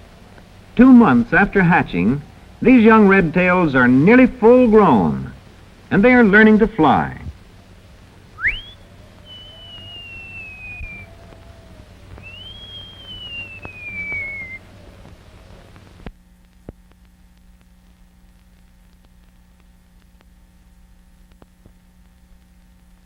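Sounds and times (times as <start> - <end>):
faint hum: 0.0 - 23.0
long whistled cries: 8.4 - 15.7.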